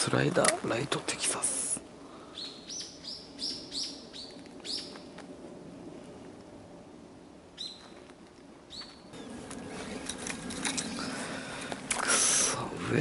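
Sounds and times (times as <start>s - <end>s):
small bird chirping: 2.3s - 5.1s.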